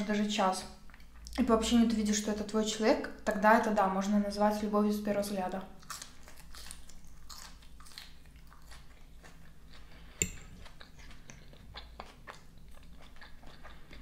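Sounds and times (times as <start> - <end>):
crunchy chewing of raw vegetables: 5.8 - 14.0.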